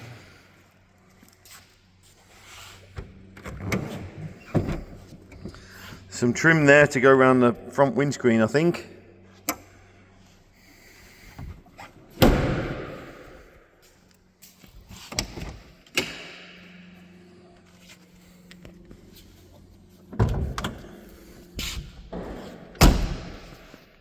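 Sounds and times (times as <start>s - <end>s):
car door or lid clunking: 12.2s - 13.0s.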